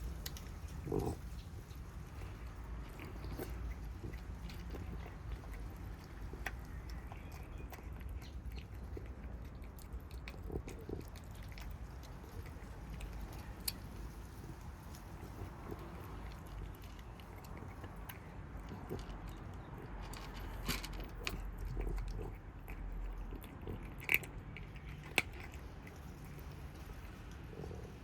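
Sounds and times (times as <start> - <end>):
cats chewing food: 0.0 - 28.0.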